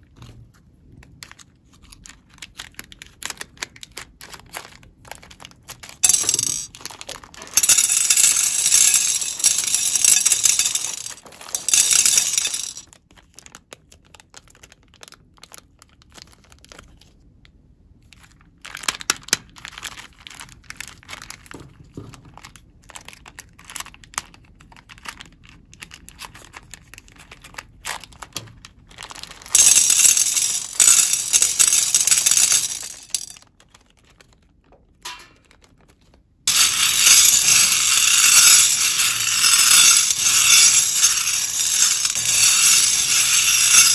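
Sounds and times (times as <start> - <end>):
plastic beads rattling in glass bowl: 5.8 - 12.8, 29.0 - 33.4, 36.5 - 43.9.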